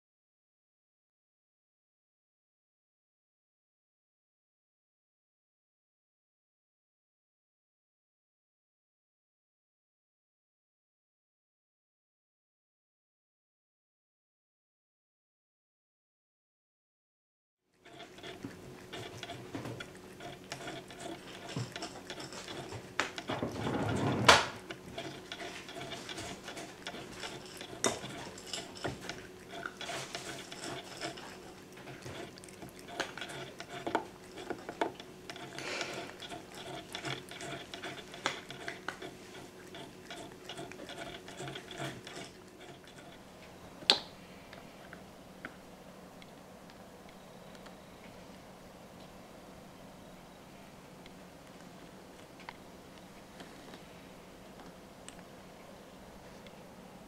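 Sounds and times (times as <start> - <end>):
cat drinking water: 17.8 - 43.4.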